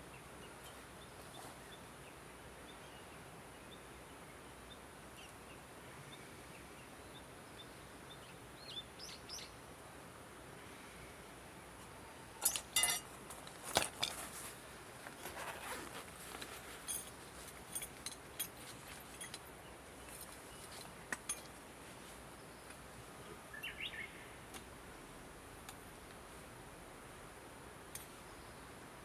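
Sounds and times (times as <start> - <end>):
bird chirp: 0.0 - 9.6, 22.4 - 24.4
sharp clicks and clinks: 12.4 - 13.1.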